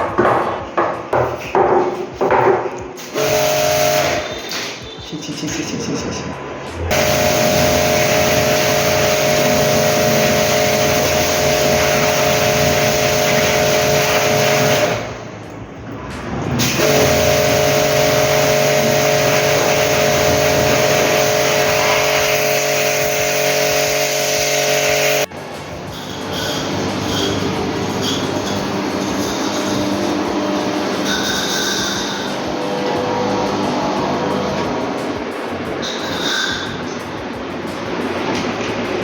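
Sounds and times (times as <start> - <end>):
electric motor whining: 3.0 - 4.5, 6.9 - 15.3, 16.6 - 25.3.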